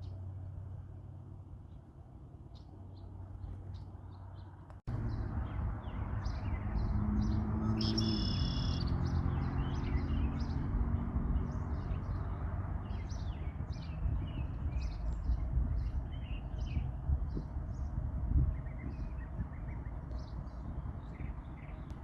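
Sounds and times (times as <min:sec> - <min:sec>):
songbirds chirping and singing: 0:03.7 - 0:17.9.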